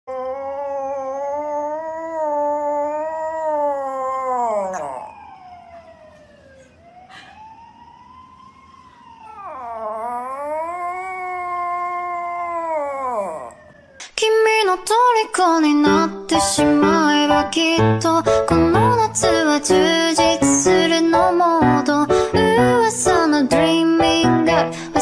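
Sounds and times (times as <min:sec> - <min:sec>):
dog howling: 0:00.1 - 0:05.6, 0:09.2 - 0:13.9.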